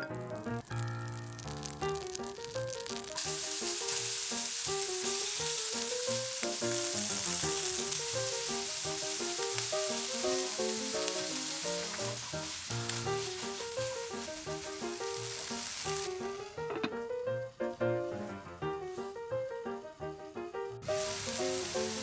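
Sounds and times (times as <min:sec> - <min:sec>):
food sizzling in a frying pan: 0:00.0 - 0:20.2, 0:20.8 - 0:22.0
light background music: 0:02.0 - 0:22.0.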